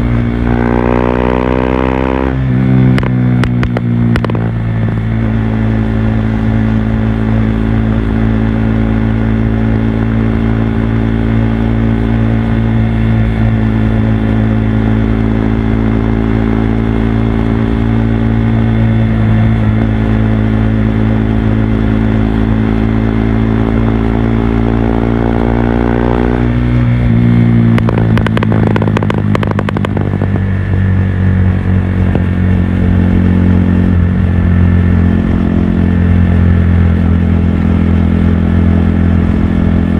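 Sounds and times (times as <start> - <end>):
engine crackling: 0.0 - 39.9
motorcycle engine running: 0.0 - 39.9.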